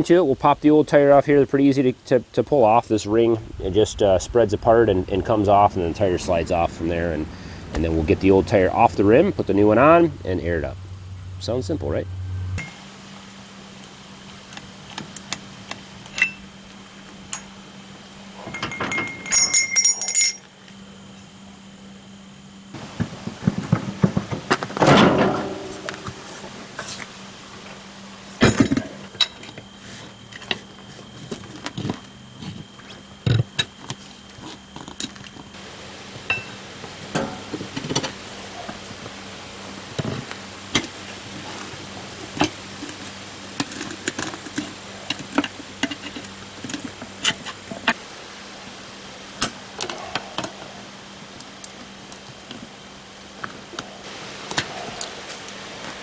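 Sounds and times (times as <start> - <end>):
hand tools clinking on metal: 18.4 - 20.5.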